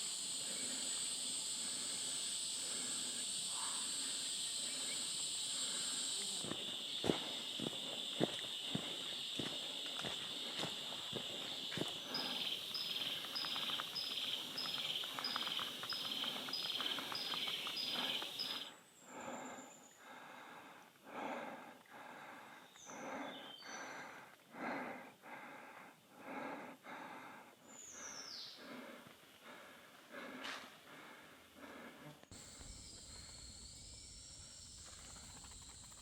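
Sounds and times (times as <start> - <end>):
insect buzz: 0.0 - 19.7, 32.3 - 36.0
person breathing: 0.2 - 6.5, 7.2 - 34.1
footsteps: 6.4 - 17.6.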